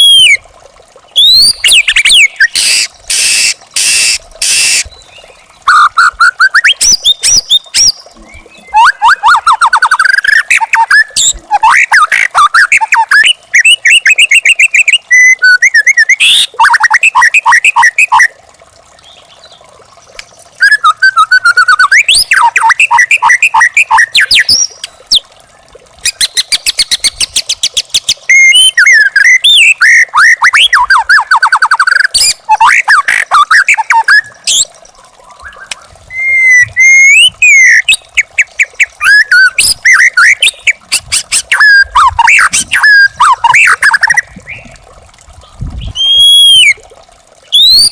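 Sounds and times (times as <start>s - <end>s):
bird singing: 1.1s - 11.3s.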